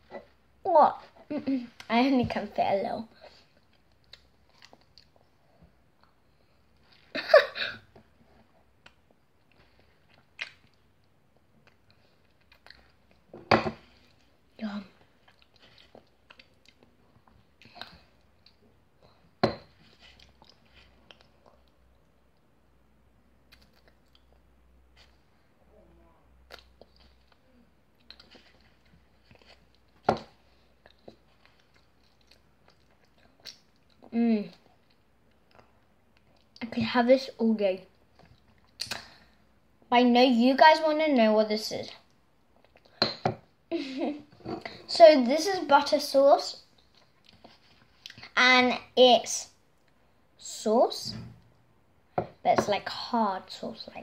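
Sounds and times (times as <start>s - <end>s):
mouth clicks and chewing: 26.4s - 28.7s, 30.8s - 36.6s
wet mouth clicks and smacks: 38.6s - 39.2s.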